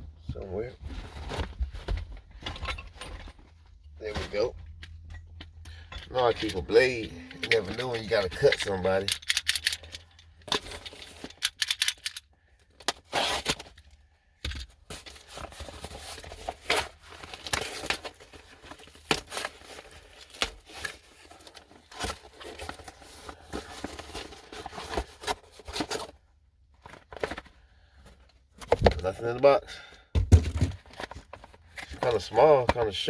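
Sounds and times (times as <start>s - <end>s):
tape tearing and cardboard crinkling: 12.8s - 13.8s, 14.9s - 26.2s
blade slicing packing tape: 13.0s - 13.6s.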